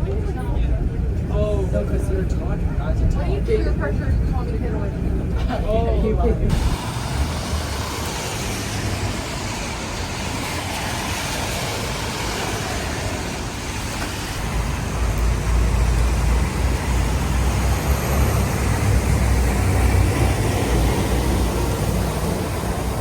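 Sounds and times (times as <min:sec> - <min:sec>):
approaching vehicle rumble: 0:00.0 - 0:23.0
traffic on wet road: 0:00.0 - 0:23.0.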